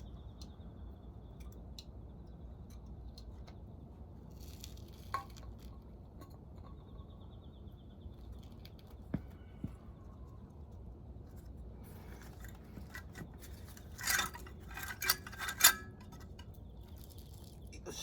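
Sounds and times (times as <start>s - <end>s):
metal tools clinking and scraping: 11.3s - 18.0s.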